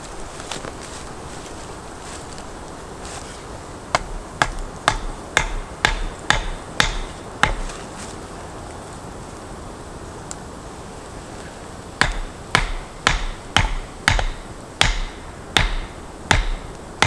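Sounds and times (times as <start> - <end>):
sharp strikes with dull thuds: 3.9 - 7.8, 12.0 - 17.0.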